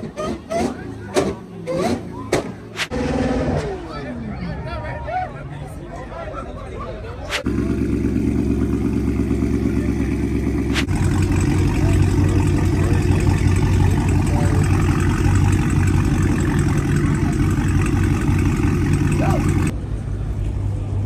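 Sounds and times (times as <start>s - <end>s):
car engine idling: 7.4s - 20.1s.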